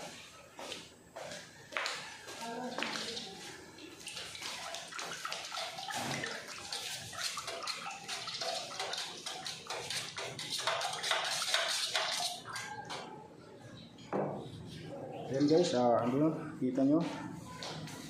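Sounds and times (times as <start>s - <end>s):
liquid sloshing in a container: 2.8s - 13.2s.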